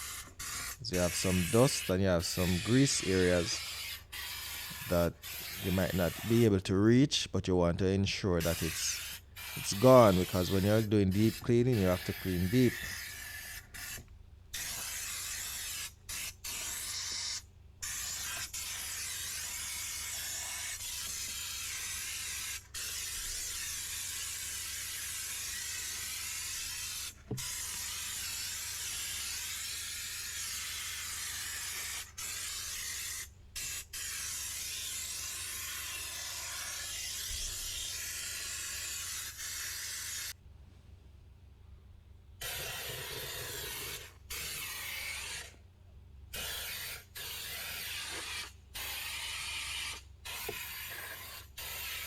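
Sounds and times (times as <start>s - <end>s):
steam cleaner hissing: 0.0s - 3.9s.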